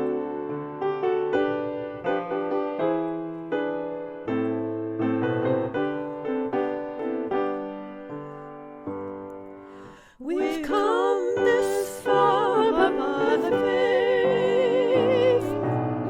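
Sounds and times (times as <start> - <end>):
piano playing a hymn: 0.0 - 16.0
person singing with vibrato: 10.1 - 15.8.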